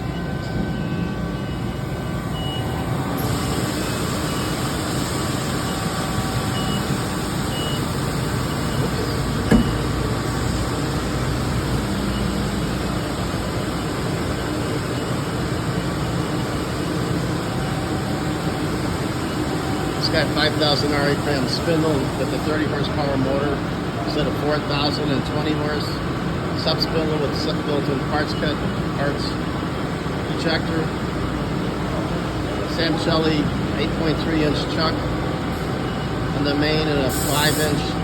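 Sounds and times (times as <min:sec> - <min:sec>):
machine shop noise: 0:02.9 - 0:38.0
sharp knock: 0:09.5 - 0:09.8.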